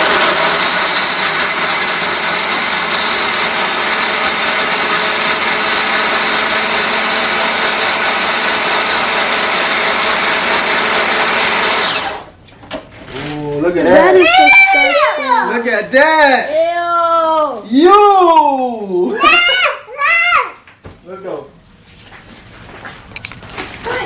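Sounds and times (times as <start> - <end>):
blender motor running with whine: 0.0 - 12.4.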